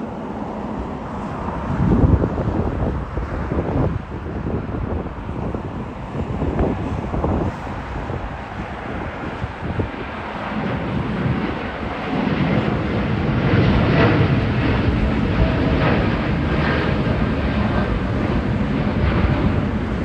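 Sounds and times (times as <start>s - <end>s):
jet engines at takeoff power: 0.0s - 20.0s.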